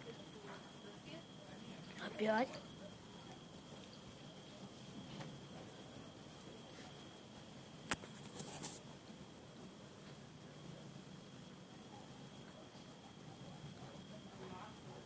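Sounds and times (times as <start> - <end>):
crickets chirping: 0.0 - 15.0
thin steady high tone: 0.0 - 15.0.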